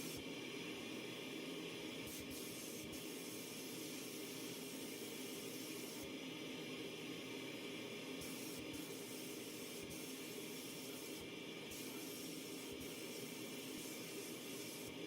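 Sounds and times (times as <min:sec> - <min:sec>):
compressed-air spray tool hissing: 0:02.0 - 0:06.1, 0:08.2 - 0:15.0.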